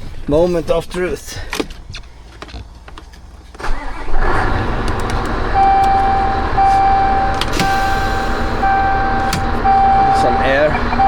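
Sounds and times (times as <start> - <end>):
truck diesel engine idling: 4.6 - 11.0
electronic warning tone: 5.6 - 11.0.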